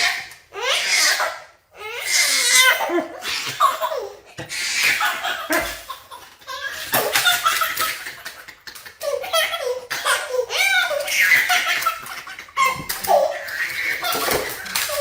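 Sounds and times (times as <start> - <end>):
people laughing: 5.3 - 9.8, 11.7 - 15.0.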